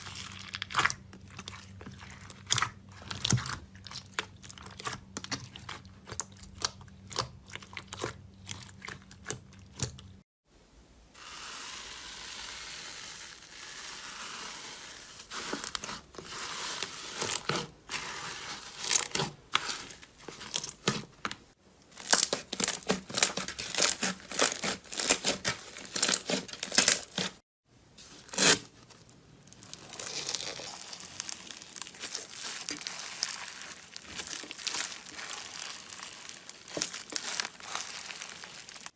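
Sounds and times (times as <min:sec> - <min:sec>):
slime crackling and popping: 0:29.4 - 0:38.9.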